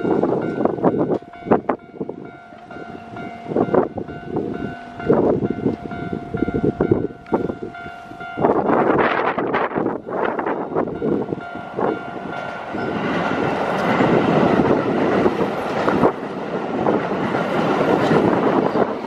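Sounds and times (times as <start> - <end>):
rush of train cars passing: 0.0 - 19.0
train wheels clacking over rail joints: 11.8 - 19.0.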